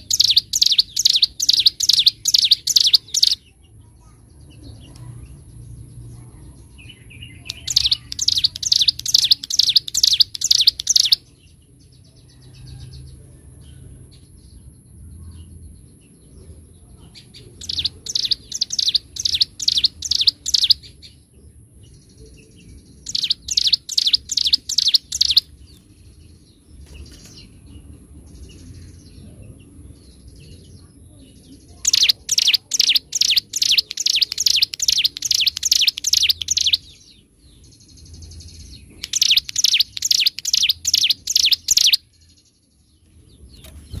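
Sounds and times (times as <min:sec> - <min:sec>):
bird chirping fast high notes: 0:00.0 - 0:03.4, 0:39.1 - 0:42.0.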